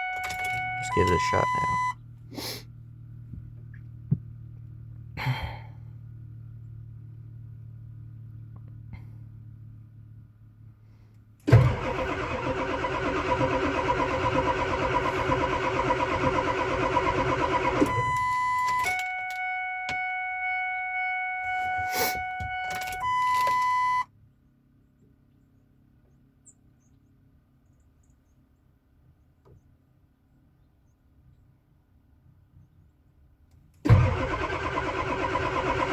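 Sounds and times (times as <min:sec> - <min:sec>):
engine starter cranking: 0:00.0 - 0:01.9, 0:11.4 - 0:24.0, 0:33.9 - 0:35.9
high electronic tones: 0:00.0 - 0:02.0, 0:17.8 - 0:24.0.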